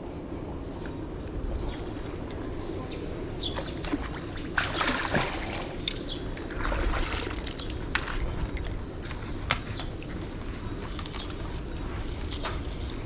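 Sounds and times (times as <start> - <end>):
water splashing: 3.6 - 7.9.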